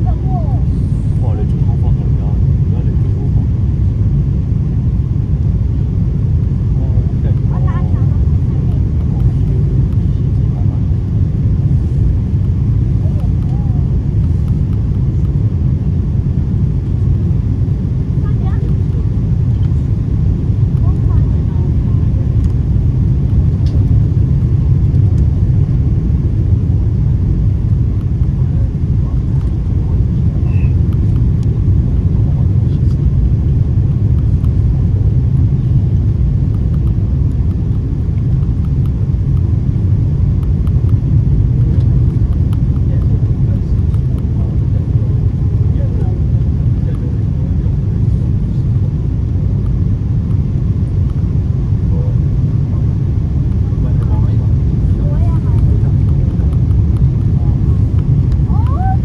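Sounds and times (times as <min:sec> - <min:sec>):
airliner cabin engine rumble: 0:00.0 - 0:59.0.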